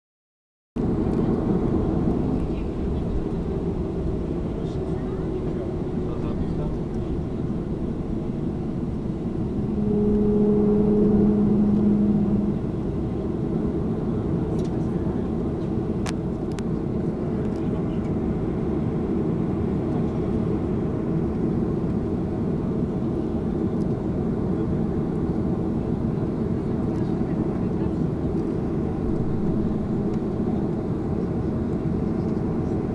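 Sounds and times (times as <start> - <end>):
airplane cabin engine rumble: 0.8 - 32.9
low hum: 5.5 - 15.0, 28.2 - 32.9.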